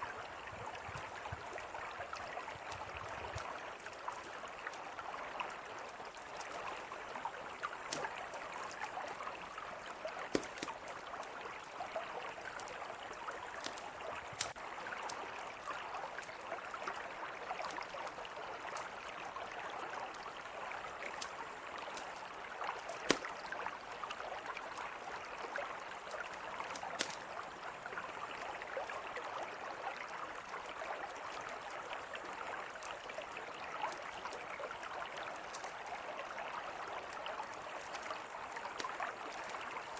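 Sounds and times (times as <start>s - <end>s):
river flowing: 0.0s - 39.9s
campfire crackling: 2.6s - 11.7s, 12.4s - 15.4s, 20.8s - 23.6s, 26.0s - 27.5s, 37.8s - 39.9s.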